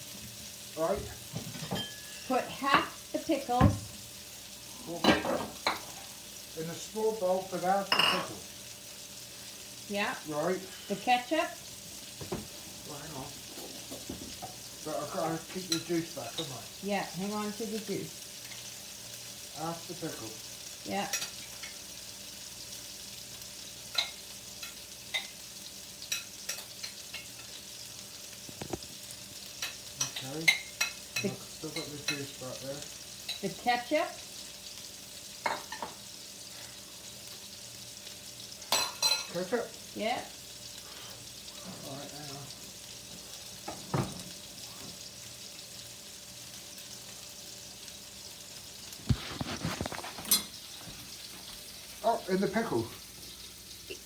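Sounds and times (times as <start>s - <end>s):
burgers sizzling in a frying pan: 0.0s - 54.0s
kitchenware clicking and clattering: 1.3s - 3.0s, 5.0s - 6.0s, 7.9s - 8.4s, 49.1s - 50.6s.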